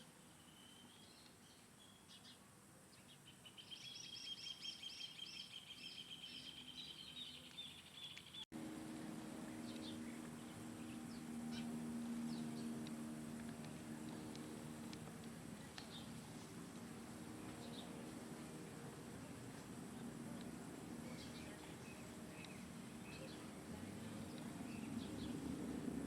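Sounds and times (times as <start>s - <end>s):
steady low hum: 8.4s - 26.0s.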